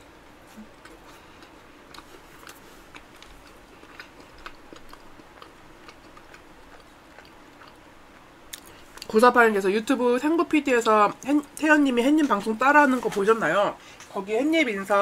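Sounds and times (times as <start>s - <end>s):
close-miked chewing: 0.1s - 9.2s.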